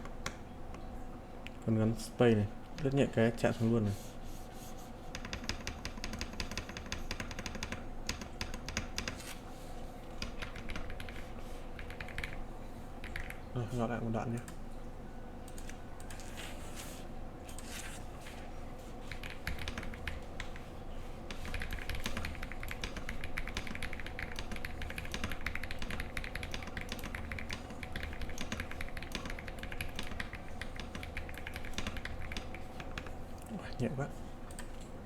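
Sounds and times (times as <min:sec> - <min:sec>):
mechanical keyboard typing: 0:05.2 - 0:09.2, 0:10.2 - 0:12.4, 0:13.0 - 0:13.5, 0:19.1 - 0:20.7, 0:21.3 - 0:33.1.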